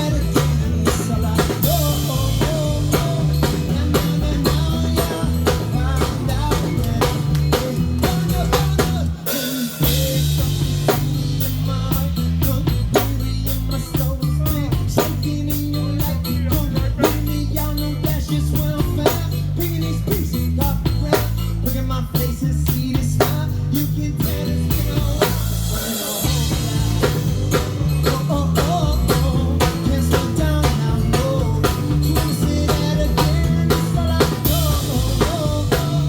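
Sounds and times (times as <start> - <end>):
drums keeping steady beat: 0.0 - 36.0
live band playing: 0.0 - 36.0.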